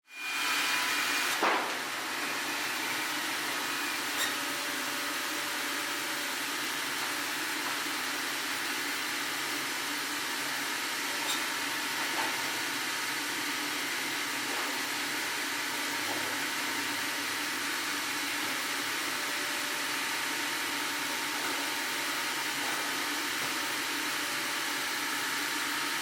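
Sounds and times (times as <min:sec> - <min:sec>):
sawmill machinery whirring: 0:00.1 - 0:26.0.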